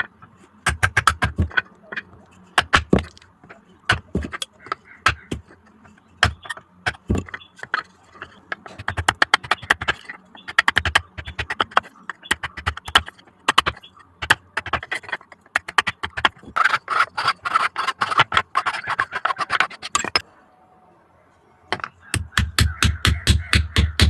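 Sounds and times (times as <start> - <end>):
rapid hammer blows on metal: 22.2 - 24.0.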